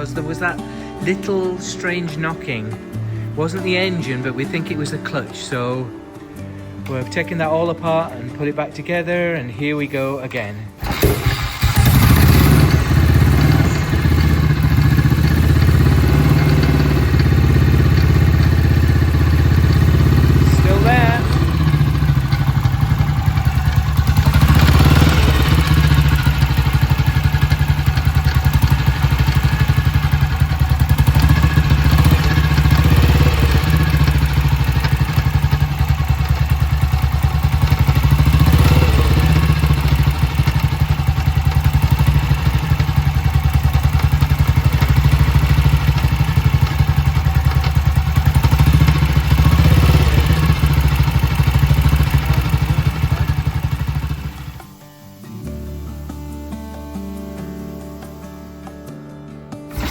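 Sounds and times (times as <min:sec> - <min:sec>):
motorcycle engine revving: 0:10.8 - 0:54.8.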